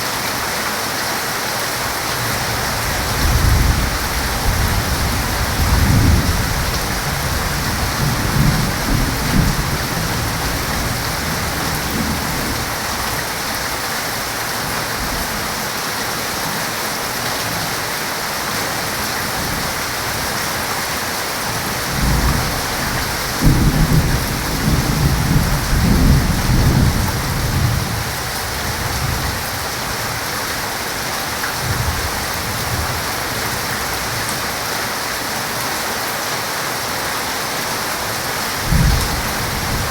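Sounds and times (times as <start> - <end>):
heavy rain falling: 0.0 - 39.9
thunder rumbling: 2.7 - 13.0, 21.9 - 29.6.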